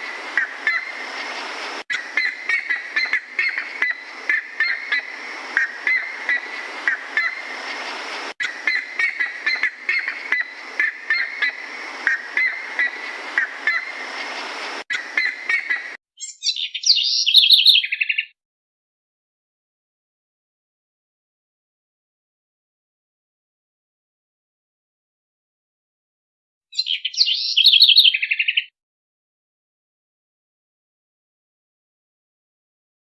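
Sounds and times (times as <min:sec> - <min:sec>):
background hiss: 0:00.0 - 0:16.0
bird trilling song: 0:14.9 - 0:18.4, 0:26.7 - 0:28.7.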